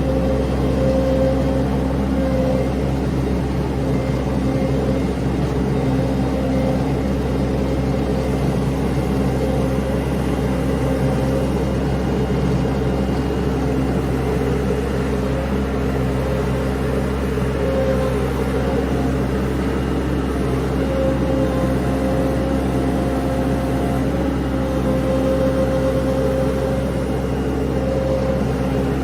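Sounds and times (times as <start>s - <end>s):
vehicle engine humming steadily: 0.0s - 29.0s.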